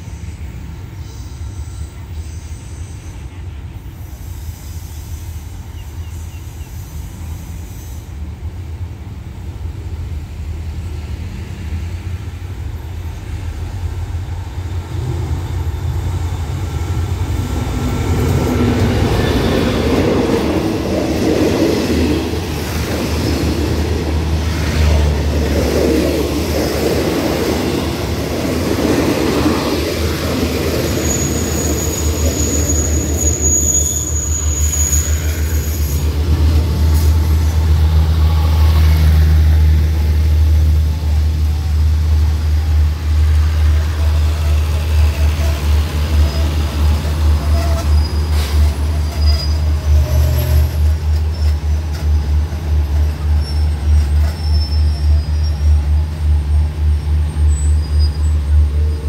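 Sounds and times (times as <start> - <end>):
train coaches rumbling past: 0.0 - 59.0
high wheel squeal: 28.8 - 37.1, 44.1 - 52.0, 52.9 - 59.0.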